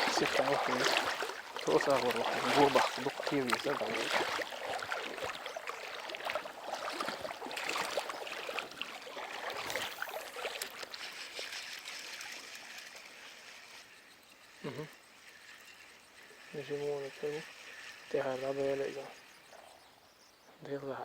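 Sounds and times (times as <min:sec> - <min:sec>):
water splashes and clicks: 0:00.0 - 0:13.5
stream water running: 0:00.0 - 0:21.0.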